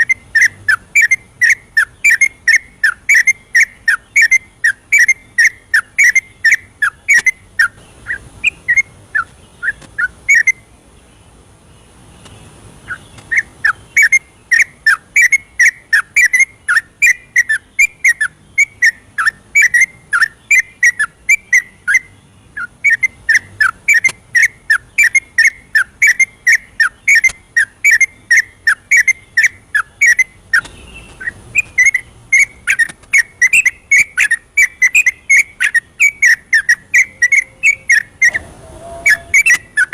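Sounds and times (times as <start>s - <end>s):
bird singing bubbling whistled chirps: 0.0s - 7.4s, 31.6s - 39.9s.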